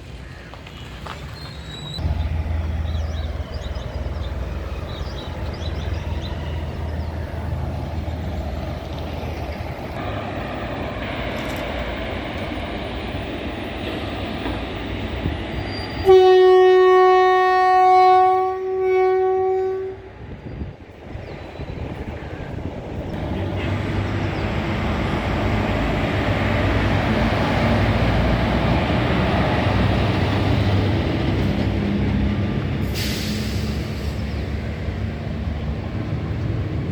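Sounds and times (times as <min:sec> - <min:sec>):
train wheels rumbling on track: 0:00.0 - 0:36.9
locomotive horn blast: 0:16.0 - 0:20.2.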